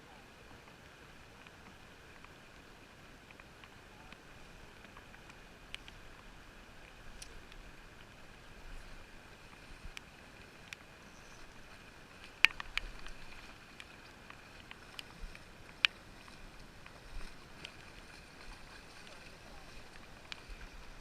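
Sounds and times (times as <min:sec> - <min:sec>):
faint steady hiss: 0:00.0 - 0:21.0
muffled sharp clicks and taps: 0:12.2 - 0:13.2.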